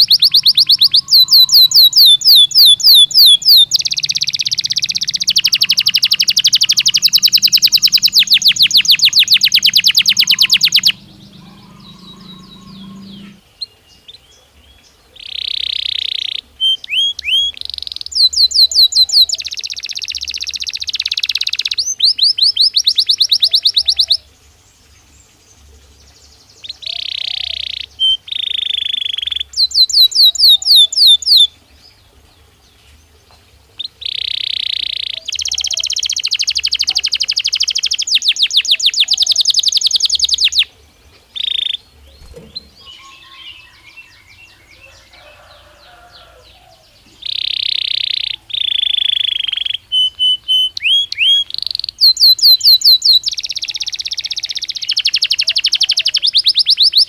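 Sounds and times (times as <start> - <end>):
canary singing trills: 0.0 - 25.0, 25.6 - 57.0.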